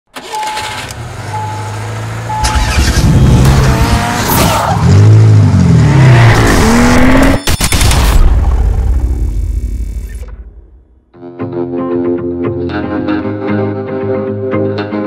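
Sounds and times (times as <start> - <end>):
car engine idling and revving: 0.2 - 11.0.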